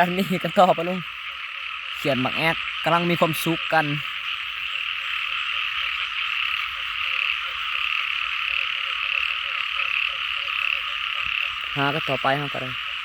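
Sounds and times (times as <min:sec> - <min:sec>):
chorus of frogs calling: 0:00.0 - 0:13.0.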